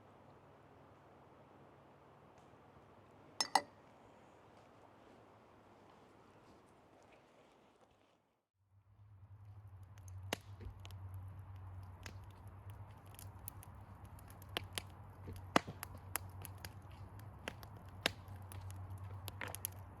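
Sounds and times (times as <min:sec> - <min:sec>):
wood fire crackling: 0:09.2 - 0:20.0.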